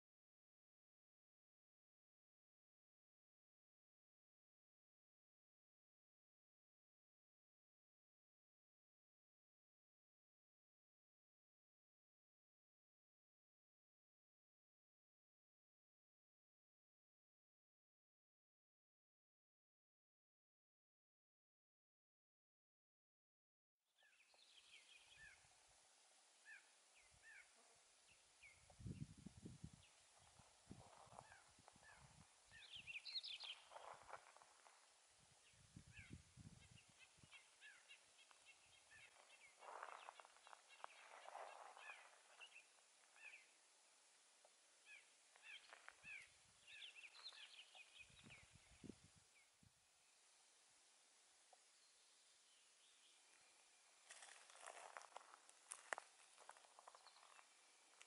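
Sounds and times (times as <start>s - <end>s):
small birds chirping: 24.0s - 25.6s, 26.4s - 50.6s, 51.5s - 58.0s.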